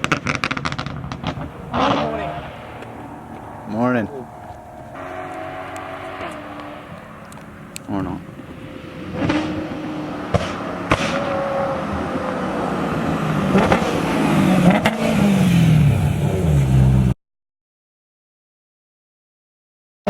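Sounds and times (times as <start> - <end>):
exhaust pops: 0.0 - 12.3
loud car exhaust: 0.0 - 17.1.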